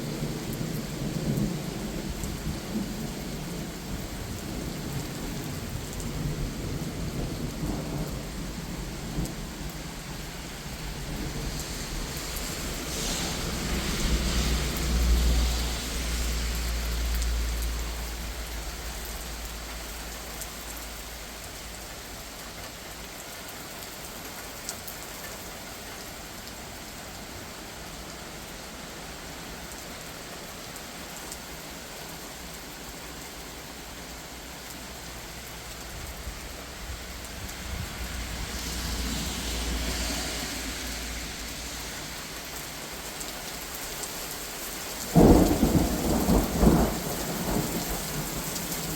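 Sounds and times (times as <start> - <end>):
low rumble of thunder: 0.0 - 20.2, 45.0 - 48.9
steady rain falling: 0.0 - 48.9.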